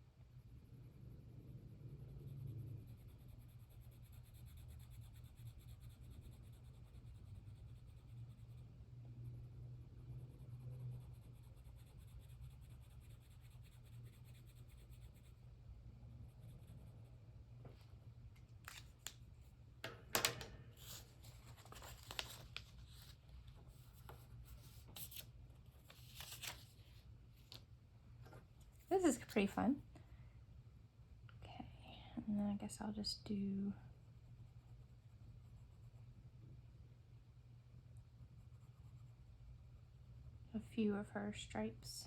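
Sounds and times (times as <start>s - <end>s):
low room hum: 0.0s - 42.0s
paper and tools scraping and clicking: 18.6s - 19.2s, 20.2s - 23.2s.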